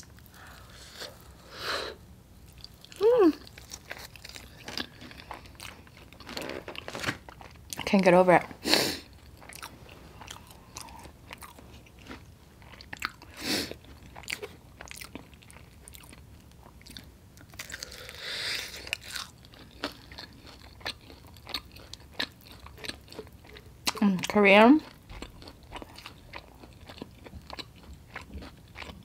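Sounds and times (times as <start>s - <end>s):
chewing and biting chicken wings: 9.2s - 24.0s, 24.8s - 29.0s.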